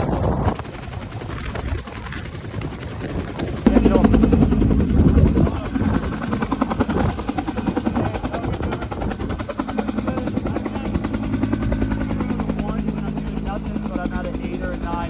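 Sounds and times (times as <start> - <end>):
helicopter rotor chopping: 0.0 - 15.0.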